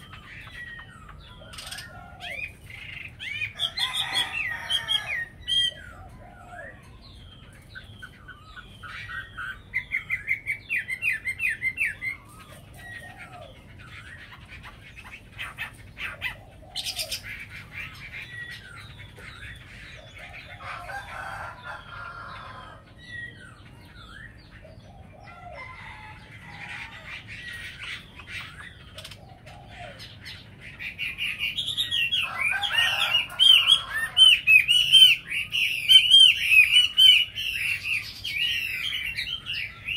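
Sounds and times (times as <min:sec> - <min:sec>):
songbirds warbling whistled song: 0:00.0 - 0:39.9.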